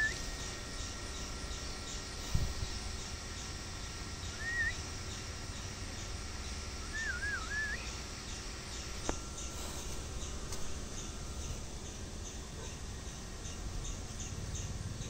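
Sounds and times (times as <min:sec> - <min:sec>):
bird whistling: 0:00.0 - 0:00.9, 0:04.2 - 0:05.2, 0:06.8 - 0:08.4
faint high chirping: 0:00.0 - 0:15.0
wind rumble on microphone: 0:02.2 - 0:02.8.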